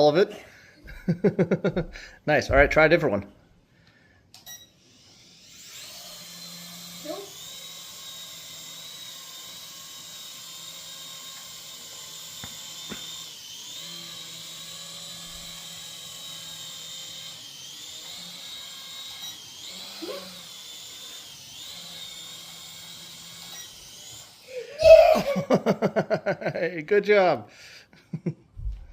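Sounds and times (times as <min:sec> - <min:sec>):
model helicopter whine: 0:04.8 - 0:26.1.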